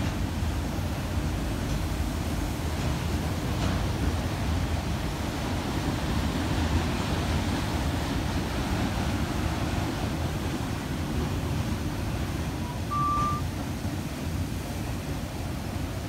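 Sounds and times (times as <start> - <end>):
freight train wheels rumbling: 0.0 - 16.0
short high beep: 12.6 - 13.5.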